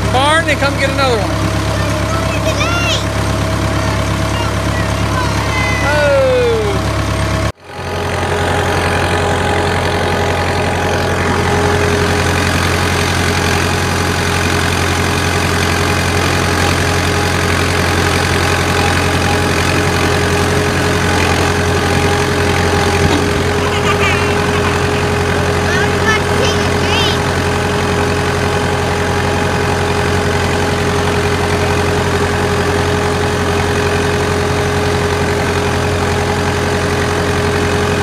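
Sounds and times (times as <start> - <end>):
tractor engine droning: 0.0 - 38.0.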